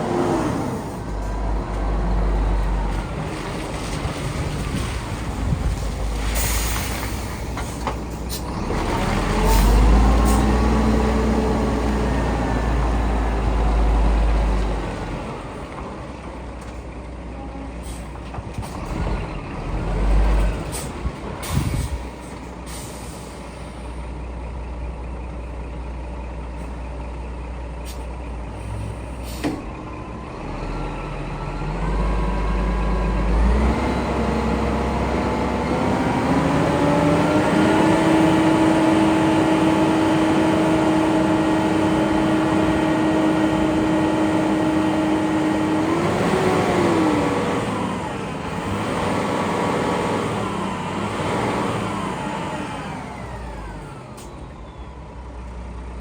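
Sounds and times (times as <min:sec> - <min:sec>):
dump truck engine running: 0:00.0 - 0:56.0
air brake hisses: 0:22.7 - 0:24.0.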